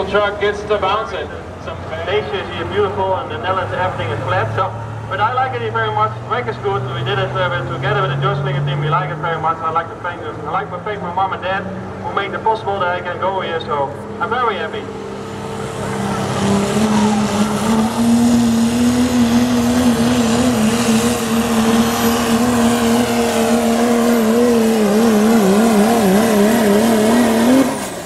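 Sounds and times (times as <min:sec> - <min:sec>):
diesel truck engine running flat out: 0:13.7 - 0:28.0.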